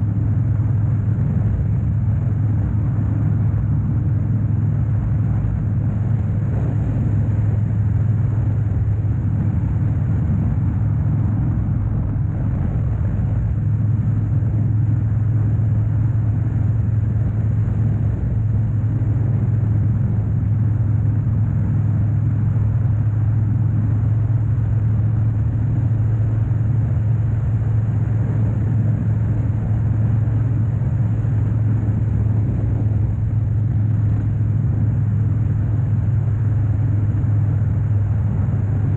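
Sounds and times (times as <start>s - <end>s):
motorcycle engine cruising: 0.0s - 38.9s
road noise: 0.0s - 38.9s.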